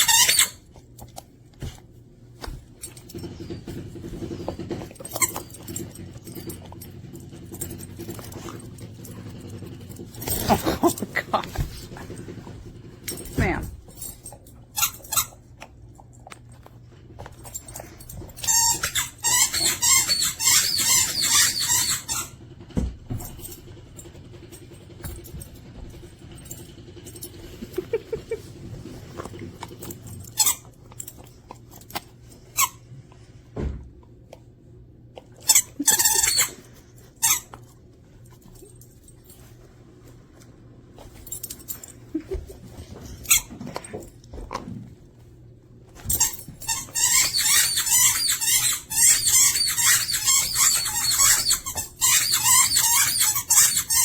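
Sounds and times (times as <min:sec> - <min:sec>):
squeaky dog toy squeaking: 0:00.0 - 0:00.6, 0:18.4 - 0:22.4, 0:35.5 - 0:37.5, 0:46.1 - 0:54.0.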